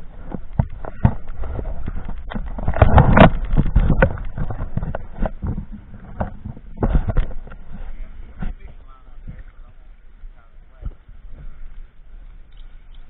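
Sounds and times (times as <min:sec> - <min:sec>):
water knocking and slapping boat: 0:00.3 - 0:07.7.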